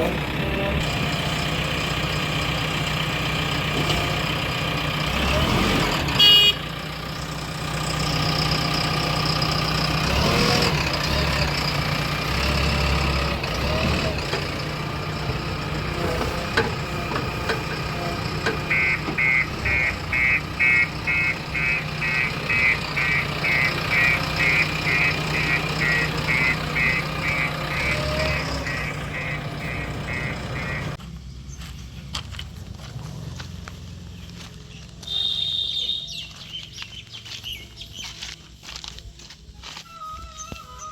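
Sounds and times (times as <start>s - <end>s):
diesel engine of earthmoving machine: 0.0s - 39.0s
reversing alarm beeping: 18.7s - 30.9s.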